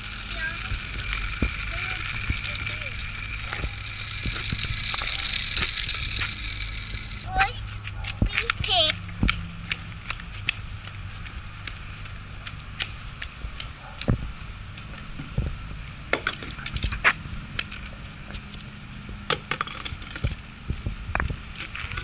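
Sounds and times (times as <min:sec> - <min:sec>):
toys clicking and knocking: 0:00.0 - 0:10.6, 0:19.3 - 0:20.4
steady background hum: 0:00.0 - 0:22.0.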